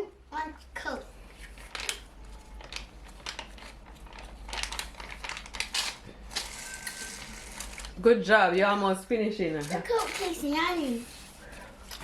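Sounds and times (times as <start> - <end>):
paper wrappers crinkling: 1.4 - 8.0, 9.6 - 12.0.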